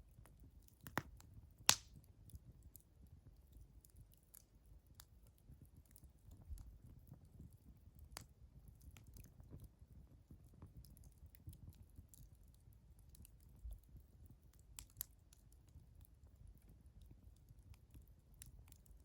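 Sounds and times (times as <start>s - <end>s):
wood fire crackling: 0.0s - 19.0s
sharp pops of fire: 0.8s - 2.0s.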